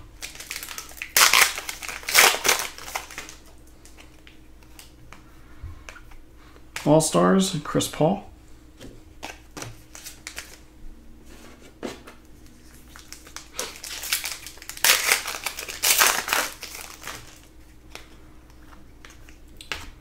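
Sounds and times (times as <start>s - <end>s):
wrapper crinkling and tearing: 0.2s - 4.0s, 9.2s - 10.6s, 12.4s - 17.5s.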